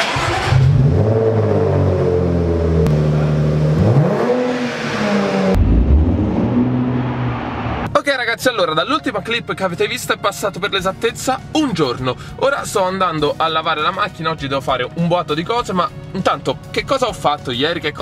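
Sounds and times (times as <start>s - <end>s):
car engine starting and idling: 0.0s - 8.0s.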